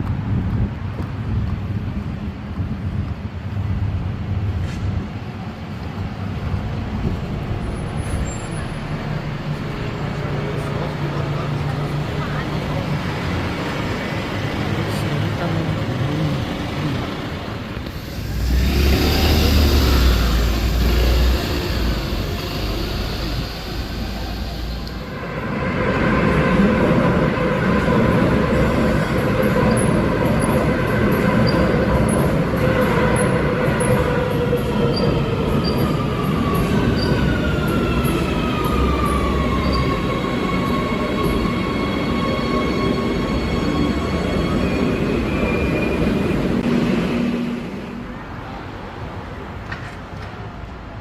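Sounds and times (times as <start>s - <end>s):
electric train rumbling on rails: 0.0s - 51.0s
vehicle passing close by: 18.2s - 22.8s.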